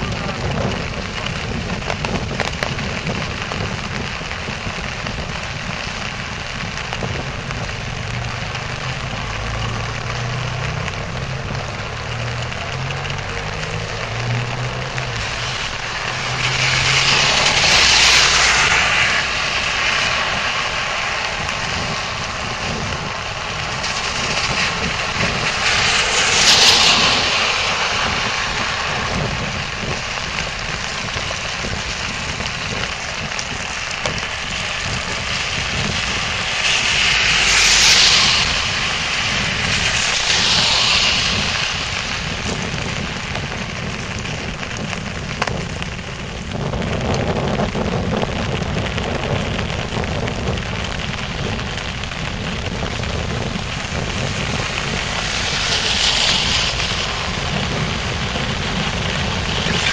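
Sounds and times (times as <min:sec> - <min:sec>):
bicycle tyres hissing on wet road: 0:00.0 - 0:59.9
heavy rain on plastic canopy: 0:00.0 - 0:59.9.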